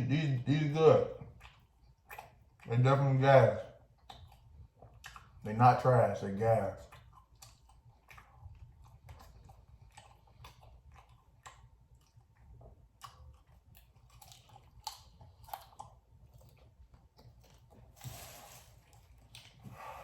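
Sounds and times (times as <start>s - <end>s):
person chewing food: 0.1s - 20.0s
wet mouth clicks and smacks: 1.2s - 2.8s, 3.9s - 5.5s.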